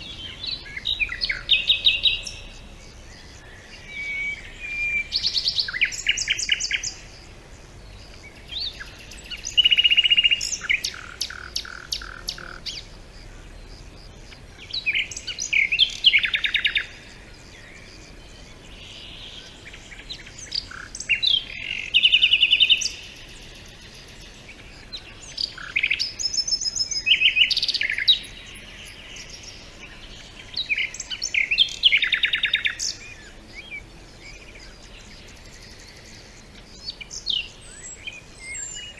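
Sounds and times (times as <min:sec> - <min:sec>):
songbird singing with trills: 0:00.0 - 0:38.9.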